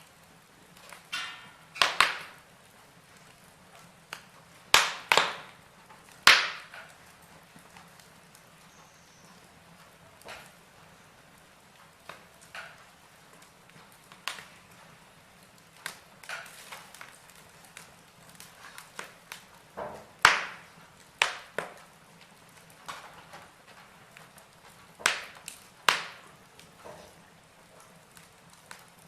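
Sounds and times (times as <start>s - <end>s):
faint steady hiss: 0.0s - 29.0s
wood fire crackling and popping: 0.0s - 29.0s.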